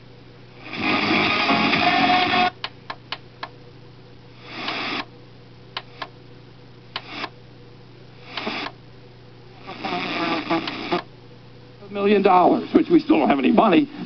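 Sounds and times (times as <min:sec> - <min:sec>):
faint radio hiss: 0:00.0 - 0:14.0
steady low hum: 0:00.0 - 0:14.0
radio station audio: 0:00.6 - 0:02.6, 0:09.7 - 0:11.1, 0:11.8 - 0:14.0
radio tuning clicks: 0:04.5 - 0:05.1, 0:05.8 - 0:06.2, 0:06.9 - 0:07.4, 0:08.2 - 0:08.8, 0:09.7 - 0:11.1.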